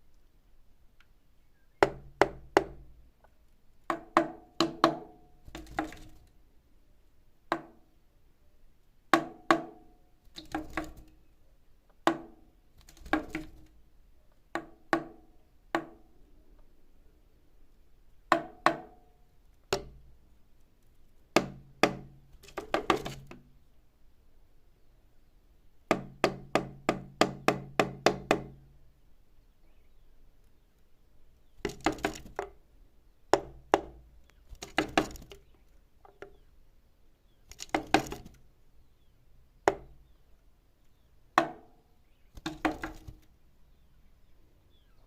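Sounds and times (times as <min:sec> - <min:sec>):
sharp knocks with hollow ring: 0:01.8 - 0:02.8, 0:03.9 - 0:06.2, 0:09.2 - 0:09.8, 0:10.4 - 0:11.1, 0:14.6 - 0:15.2, 0:18.3 - 0:19.1, 0:19.7 - 0:20.0, 0:21.4 - 0:23.4, 0:25.9 - 0:28.6, 0:31.6 - 0:32.6, 0:33.3 - 0:35.5, 0:37.5 - 0:38.4, 0:39.7 - 0:40.0, 0:41.4 - 0:41.7, 0:42.4 - 0:43.2.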